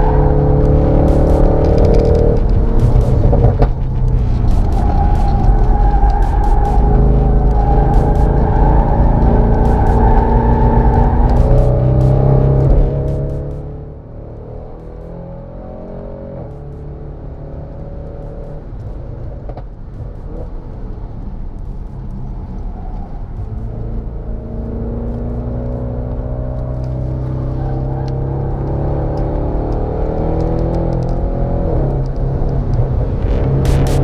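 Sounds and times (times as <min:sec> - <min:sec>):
car engine accelerating hard: 0:00.0 - 0:34.0.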